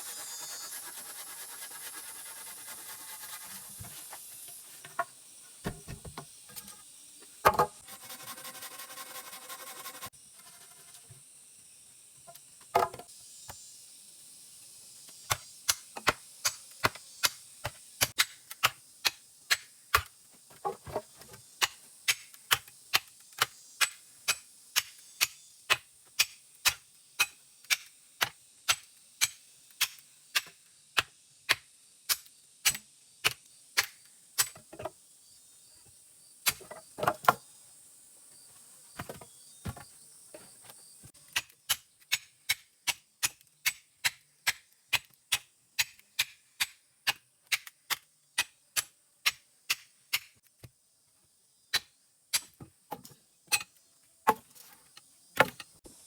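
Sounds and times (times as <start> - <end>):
steady hiss: 0.0 - 41.4, 53.8 - 56.0.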